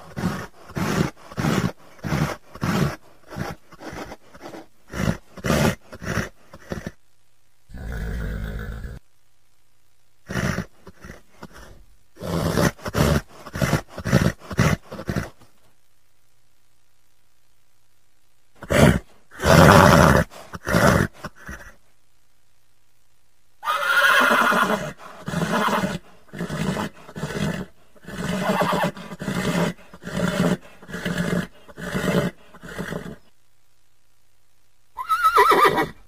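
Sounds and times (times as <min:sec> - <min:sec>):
horse neighing: 0:23.6 - 0:33.2, 0:35.0 - 0:36.0.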